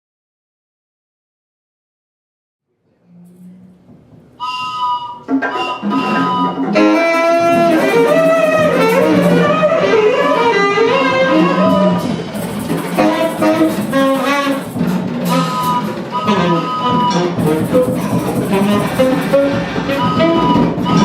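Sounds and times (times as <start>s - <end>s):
wavering lead melody: 4.4s - 21.0s.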